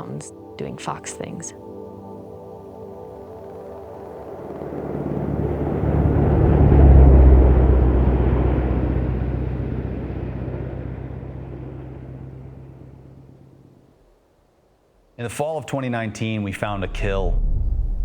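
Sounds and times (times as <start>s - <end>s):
steady low hum: 0.0s - 14.4s, 16.5s - 18.0s
low rumble: 4.6s - 13.9s, 16.5s - 18.0s.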